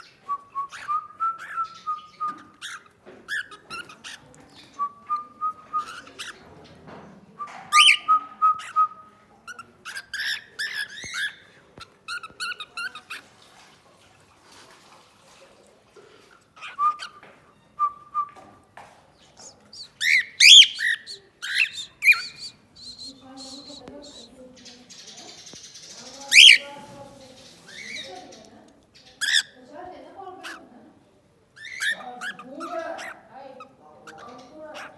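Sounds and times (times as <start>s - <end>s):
cockatiel whistling and chirping: 0.6s - 4.0s, 5.1s - 6.4s, 7.4s - 8.8s, 10.0s - 11.4s, 16.6s - 18.3s, 19.8s - 23.8s, 26.3s - 26.6s.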